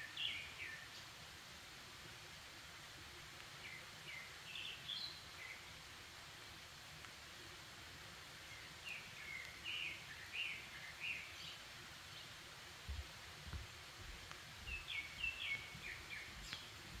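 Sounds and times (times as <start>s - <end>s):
background hiss: 0.0s - 17.0s
songbird chirping: 0.0s - 17.0s
soft low thumps: 12.8s - 14.3s.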